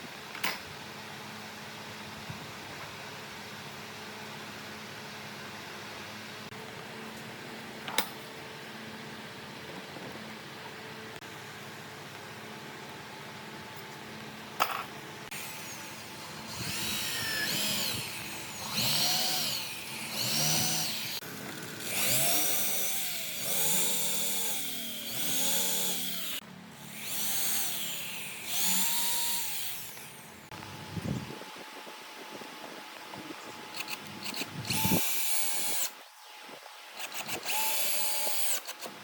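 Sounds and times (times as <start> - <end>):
power drill motor whining: 15.3 - 30.5, 33.7 - 36.4, 37.0 - 39.0.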